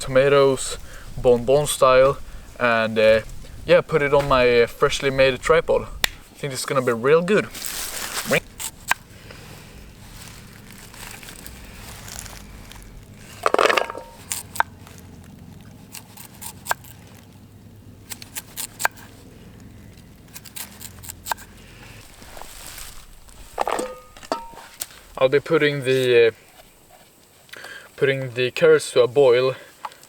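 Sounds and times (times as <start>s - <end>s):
campfire crackling and popping: 2.2s - 6.5s, 7.5s - 25.4s
handling clatter: 7.4s - 15.7s, 22.0s - 25.1s.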